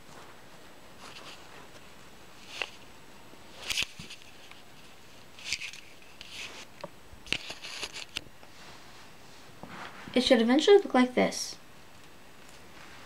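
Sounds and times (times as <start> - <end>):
fabric rustles and scuffs: 7.4 - 10.2, 12.4 - 13.0.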